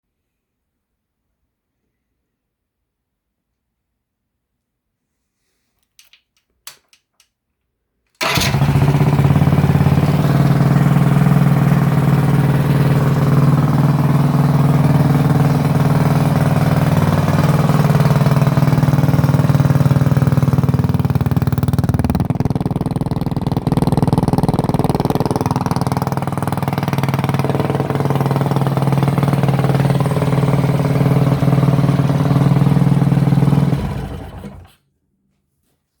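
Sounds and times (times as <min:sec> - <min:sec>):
single-cylinder engine running: 0:08.2 - 0:34.7.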